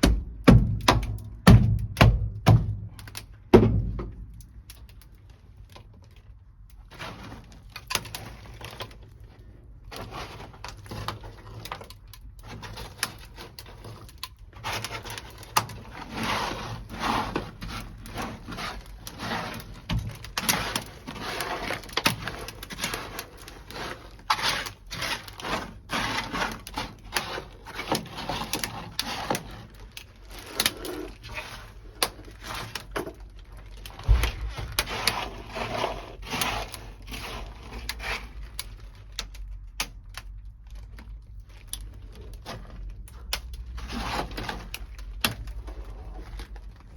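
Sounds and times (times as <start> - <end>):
frozen mat cracking and knocking: 9.9 - 46.9.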